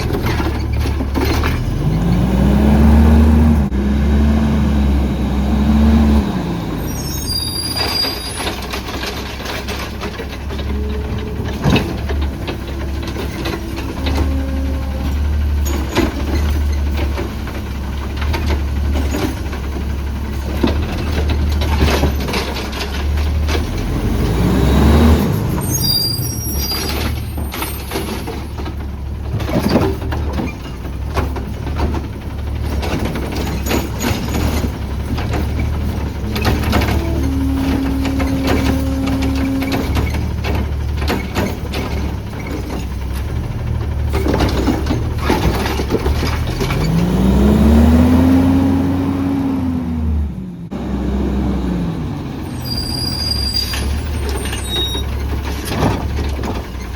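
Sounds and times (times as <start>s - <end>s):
clanks and knocks: 0.0s - 2.2s, 7.8s - 24.0s, 26.8s - 47.0s, 53.7s - 56.9s
garbage truck engine humming: 0.0s - 56.9s
air brakes squealing and hissing: 6.6s - 8.7s, 25.3s - 28.6s, 52.4s - 55.2s.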